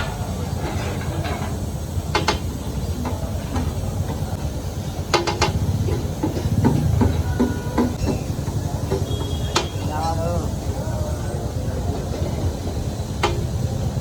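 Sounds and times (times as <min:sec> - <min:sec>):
metal spatula clanking on griddle: 0:00.0 - 0:02.6.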